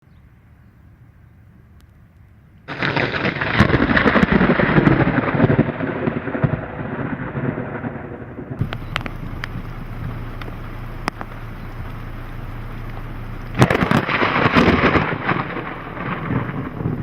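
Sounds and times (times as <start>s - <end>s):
sharp thunder cracks: 2.7s - 17.0s
thunder rumbling and crackling: 2.7s - 17.0s
low hum: 8.6s - 17.0s.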